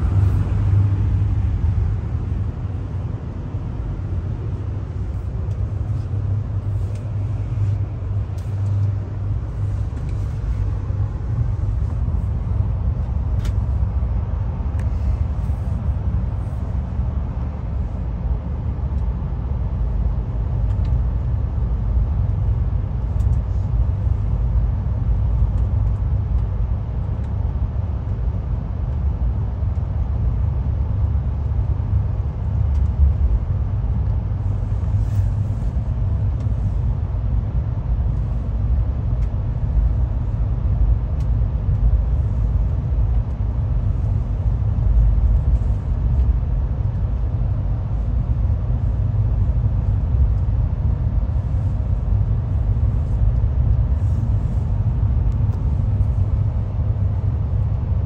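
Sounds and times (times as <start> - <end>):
train rumbling on rails: 0.0 - 18.1.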